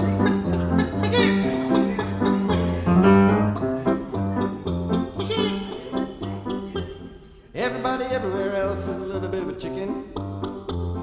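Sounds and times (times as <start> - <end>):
bass line: 2.4 - 7.0.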